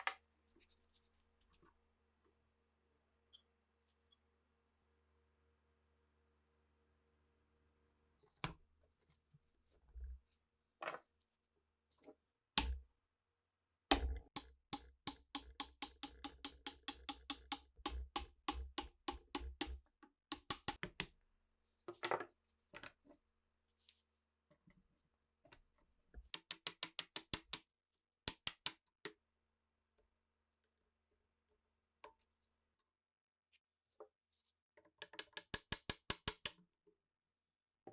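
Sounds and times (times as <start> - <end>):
taps and clicks on rifle parts: 26.4 - 27.6, 28.3 - 28.8, 35.0 - 36.6.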